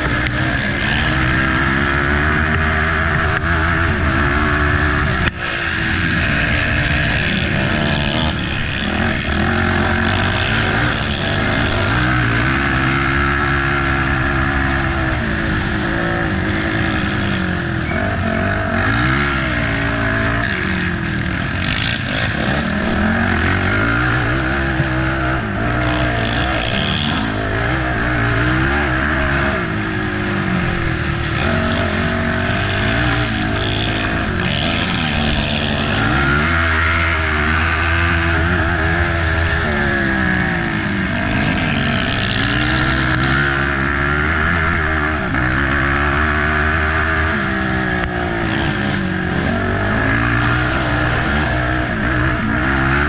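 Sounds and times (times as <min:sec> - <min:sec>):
atv engine revving: 0:00.0 - 0:53.0.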